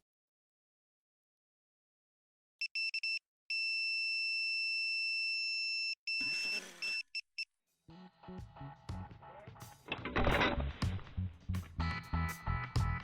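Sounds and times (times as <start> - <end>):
music: 7.9 - 13.0.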